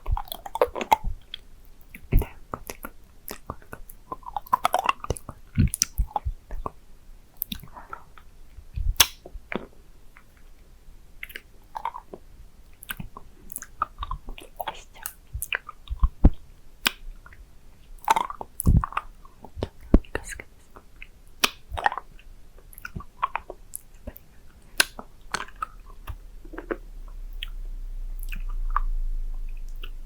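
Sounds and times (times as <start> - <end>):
licking and sucking candy: 18.0 - 28.9
candy clicking against teeth: 21.4 - 22.1.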